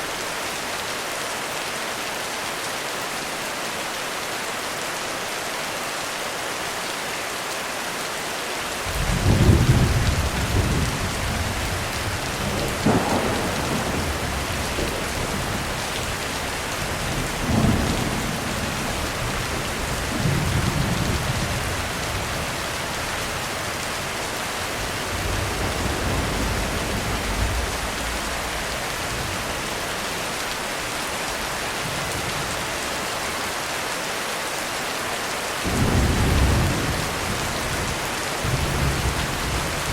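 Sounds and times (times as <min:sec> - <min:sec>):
heavy rain on a roof: 0:00.0 - 0:39.9
rolling thunder: 0:08.8 - 0:22.5, 0:24.7 - 0:29.7.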